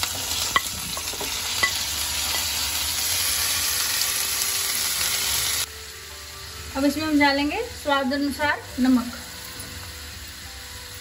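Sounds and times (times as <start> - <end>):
tomatoes sizzling in hot oil: 0.0 - 11.0.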